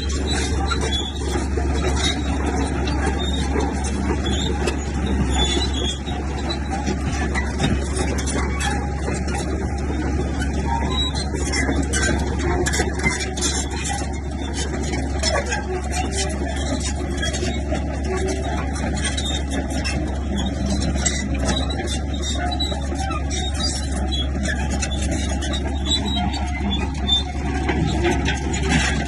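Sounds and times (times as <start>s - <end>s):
bulldozer diesel engine running: 0.0s - 29.0s.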